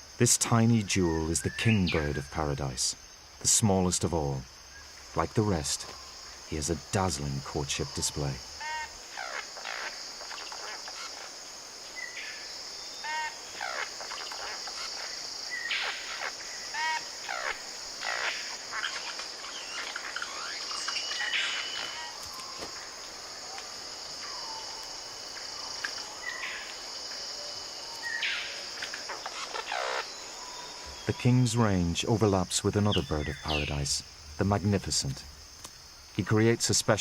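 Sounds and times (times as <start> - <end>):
high-pitched insect drone: 0.0 - 35.5
short bird calls: 8.6 - 22.7.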